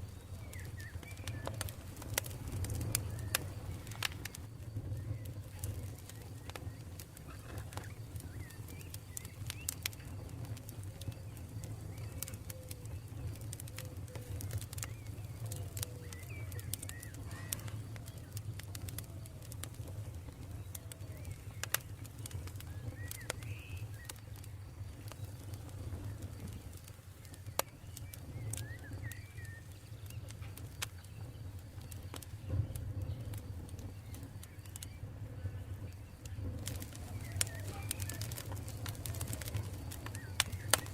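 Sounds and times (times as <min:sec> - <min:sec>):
campfire crackling and popping: 0:00.0 - 0:40.9
low rumble of fire: 0:00.0 - 0:40.9
birds calling: 0:35.8 - 0:40.9.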